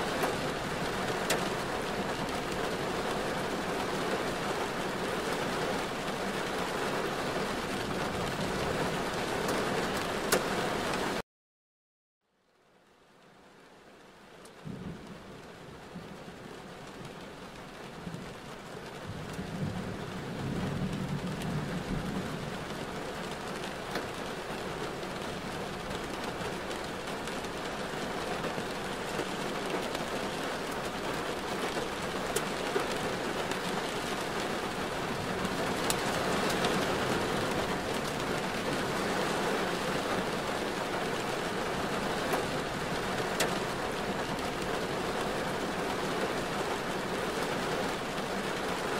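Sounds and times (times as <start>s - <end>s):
rain on a driving car: 0.0s - 11.2s, 12.4s - 48.9s
raindrops ticking: 20.9s - 48.8s.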